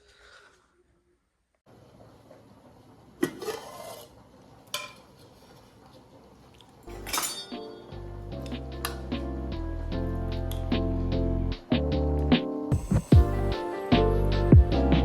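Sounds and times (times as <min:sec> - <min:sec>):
metal dishes clattering: 0:06.9 - 0:09.0
background music: 0:06.9 - 0:15.0.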